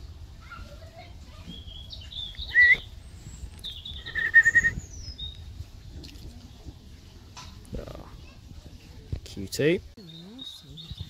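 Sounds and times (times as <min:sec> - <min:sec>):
bird whistled notes: 0:01.6 - 0:03.0, 0:03.6 - 0:05.4.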